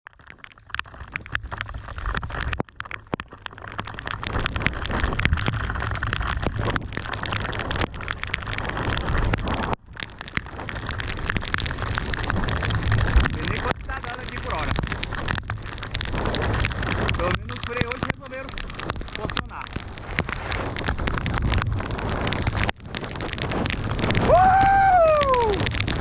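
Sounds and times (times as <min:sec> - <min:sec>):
heavy rain and wind on microphone: 0:00.1 - 0:26.0
raindrop taps on camera: 0:00.1 - 0:26.0.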